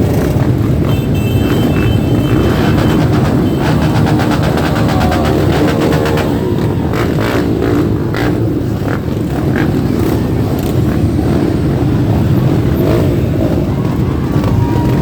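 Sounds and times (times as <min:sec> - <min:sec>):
motorcycle engine revs: 0:00.0 - 0:13.7
motorcycle engines running loudly: 0:00.0 - 0:15.0.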